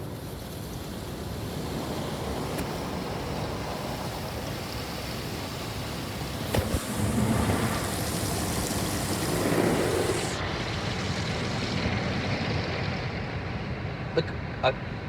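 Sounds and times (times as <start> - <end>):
car wash water spray: 0.0 - 11.7.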